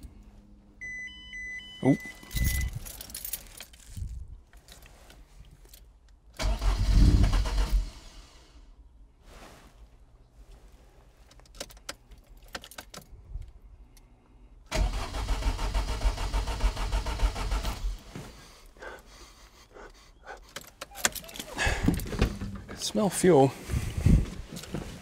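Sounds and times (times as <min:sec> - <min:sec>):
starter motor cranking engine: 0:06.4 - 0:08.0, 0:14.7 - 0:18.0.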